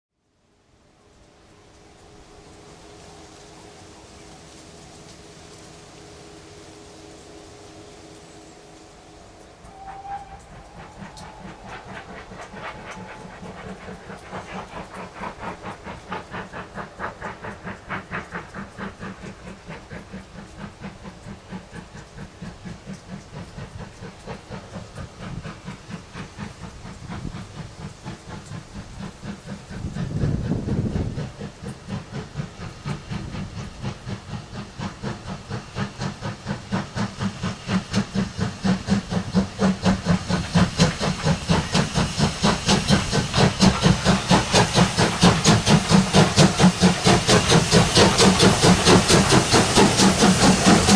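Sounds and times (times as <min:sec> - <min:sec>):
steam hiss: 0:00.5 - 0:50.9
steam locomotive chuffing: 0:00.6 - 0:50.9
low rumble: 0:09.6 - 0:15.8.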